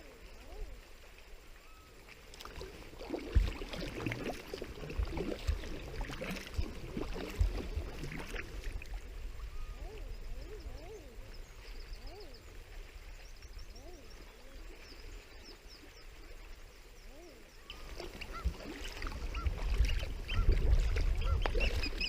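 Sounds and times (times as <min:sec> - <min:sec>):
water splashing against kayak: 0:00.0 - 0:22.0
bird calls: 0:17.0 - 0:20.6, 0:21.2 - 0:22.0.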